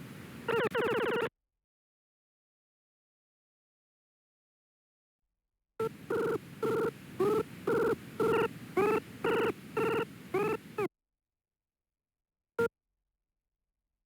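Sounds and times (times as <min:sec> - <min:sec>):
short buzzy electronic beeps: 0:00.0 - 0:01.3, 0:05.8 - 0:10.9.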